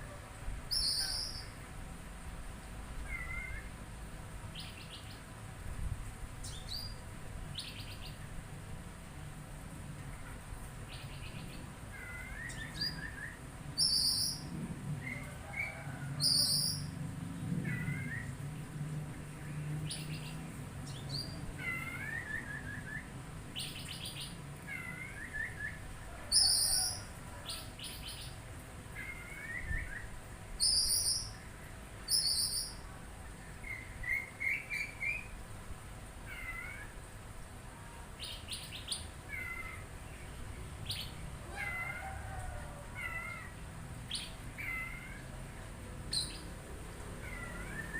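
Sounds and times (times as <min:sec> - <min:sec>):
songbird chirping: 0:00.7 - 0:01.6, 0:29.0 - 0:35.4, 0:46.1 - 0:46.6.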